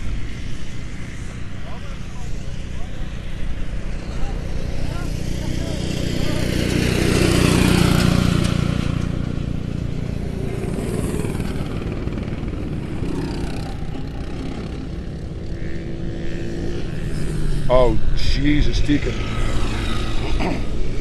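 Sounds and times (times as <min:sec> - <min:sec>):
small engines droning: 0:00.0 - 0:21.0.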